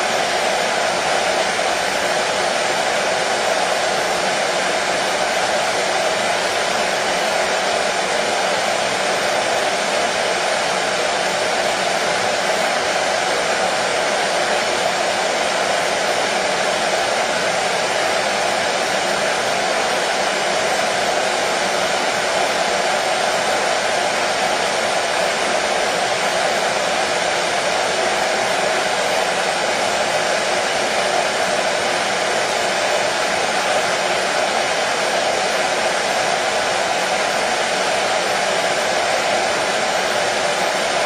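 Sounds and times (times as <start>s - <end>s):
hair dryer running: 0.0s - 41.0s.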